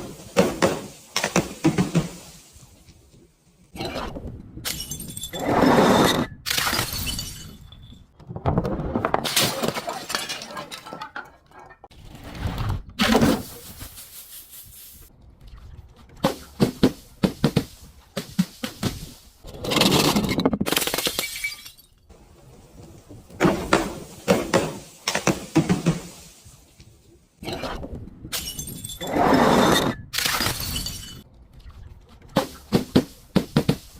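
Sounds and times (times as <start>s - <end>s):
glass bottles crushed and shattering: 6.6s - 8.0s, 9.1s - 11.9s, 20.7s - 22.0s, 30.2s - 31.2s.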